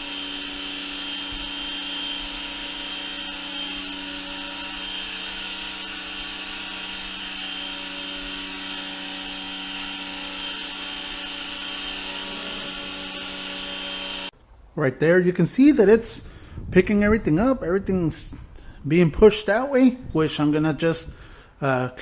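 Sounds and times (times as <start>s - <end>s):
pressure washer motor humming: 0.0s - 14.3s.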